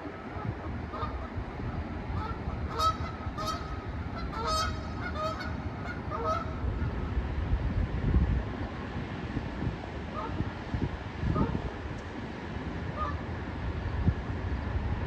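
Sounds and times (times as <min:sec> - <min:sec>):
geese honking: 0:00.0 - 0:06.9, 0:10.1 - 0:10.4, 0:12.9 - 0:13.2
wind rumble on microphone: 0:00.0 - 0:15.0.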